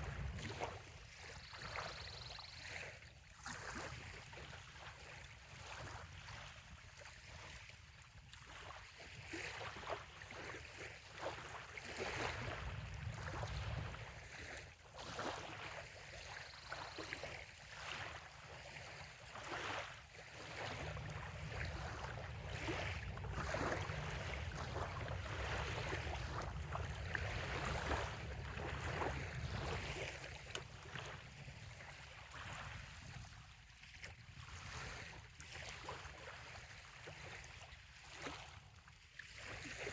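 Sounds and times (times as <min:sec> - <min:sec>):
low wind rumble: 0:00.0 - 0:00.5, 0:20.6 - 0:31.1
waves lapping on sandy shore: 0:00.0 - 0:39.9.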